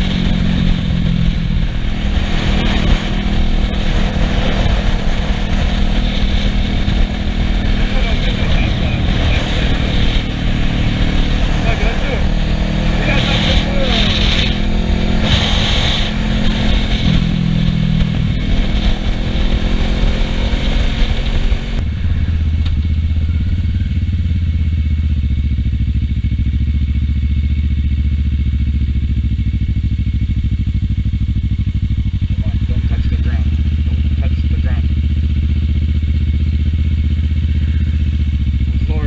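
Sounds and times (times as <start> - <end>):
wind rushing past microphone: 0.0 - 23.9
motorcycle engine running: 0.0 - 39.0.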